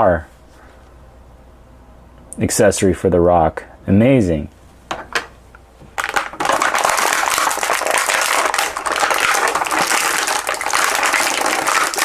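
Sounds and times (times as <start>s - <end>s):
plastic packaging crackling: 5.9s - 12.0s.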